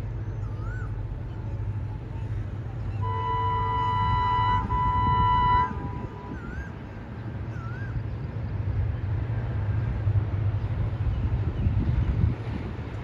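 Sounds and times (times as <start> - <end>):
low rumble of oncoming train: 0.0 - 13.0
locomotive horn: 3.0 - 6.6.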